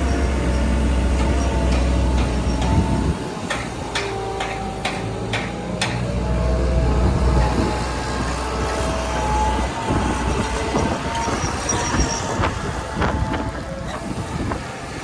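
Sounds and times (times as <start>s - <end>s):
excavator diesel engine: 0.0s - 15.0s
steel tracks clanking: 0.0s - 15.0s
thin steady squeal: 8.8s - 12.9s.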